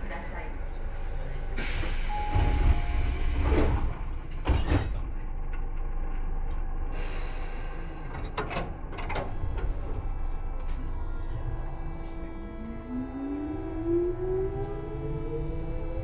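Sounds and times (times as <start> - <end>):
train low rumble and hum: 0.0 - 16.0
air hissing: 1.6 - 3.6.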